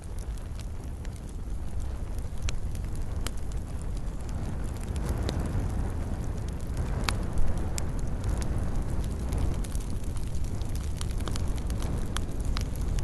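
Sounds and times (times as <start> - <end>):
fire crackles and pops: 0.0 - 13.0
wood fire rumbling: 0.0 - 13.0.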